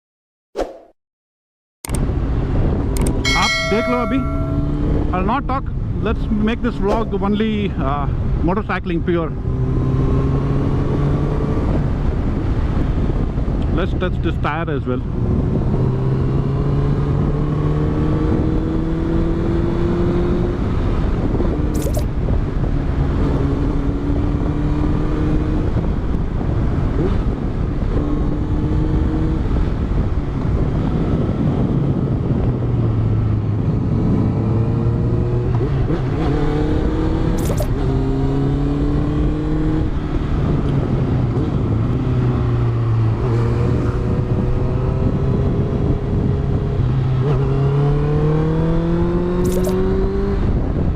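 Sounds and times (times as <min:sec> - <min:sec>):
wind and road noise: 0:01.8 - 0:50.9
motorcycle engine revving: 0:09.4 - 0:11.7, 0:33.9 - 0:50.6.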